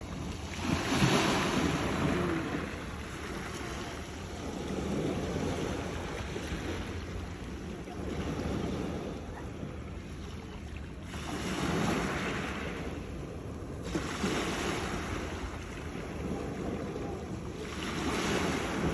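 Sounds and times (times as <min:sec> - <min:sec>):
sea waves crashing against rocks: 0:00.1 - 0:09.3, 0:11.2 - 0:12.9, 0:17.3 - 0:18.9.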